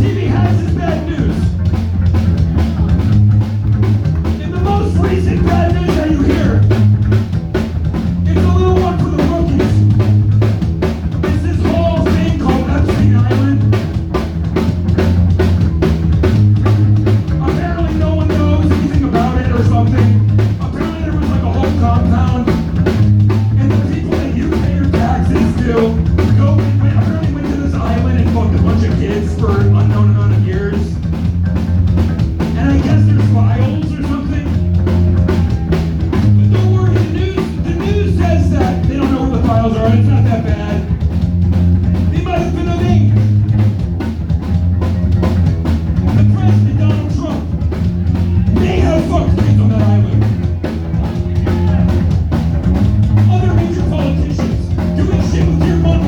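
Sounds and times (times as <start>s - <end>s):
bass guitar: 0.0s - 56.0s
drum kit: 0.0s - 56.0s
person singing: 23.5s - 30.8s, 53.2s - 56.0s.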